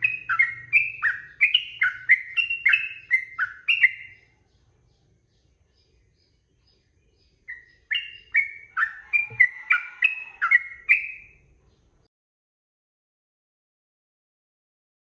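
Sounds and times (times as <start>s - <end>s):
bird singing: 0.0s - 12.1s.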